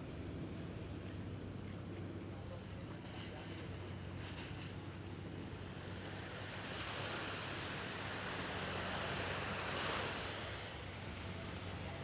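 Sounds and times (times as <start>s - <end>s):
waves washing onto sandy beach: 6.0s - 12.0s.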